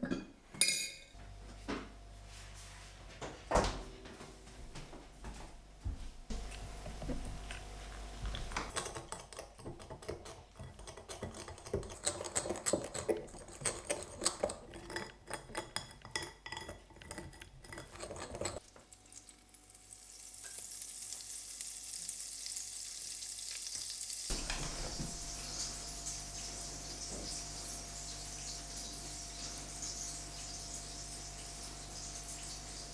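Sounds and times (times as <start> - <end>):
fritters sizzling in hot oil: 18.6 - 32.9.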